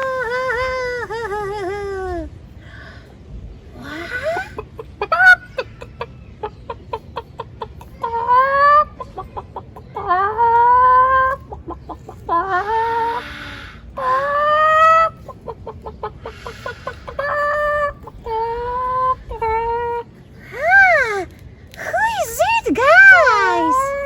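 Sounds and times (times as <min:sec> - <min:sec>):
chicken clucking and squawking: 0:03.8 - 0:20.1.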